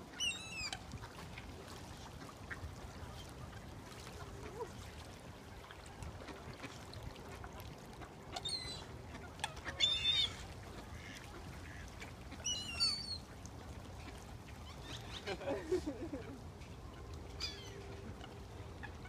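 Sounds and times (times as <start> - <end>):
waterbirds calling harshly: 0.1 - 1.2, 8.0 - 16.1, 17.3 - 19.0.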